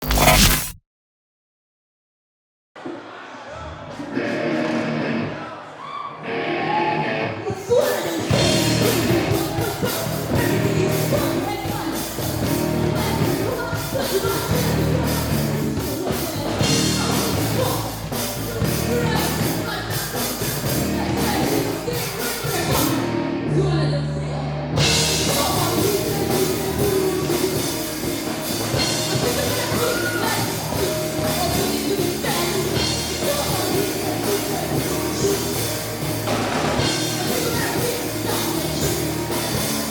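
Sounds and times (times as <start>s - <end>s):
live rock band: 7.9s - 23.4s, 24.7s - 39.9s
lead singer singing: 29.2s - 36.0s.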